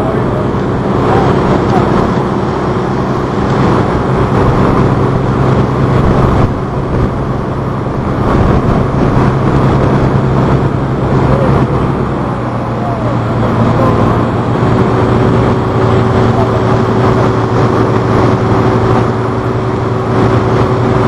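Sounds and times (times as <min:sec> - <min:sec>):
boat engines droning: 0:00.0 - 0:21.0
broad rushing noise: 0:00.0 - 0:21.0.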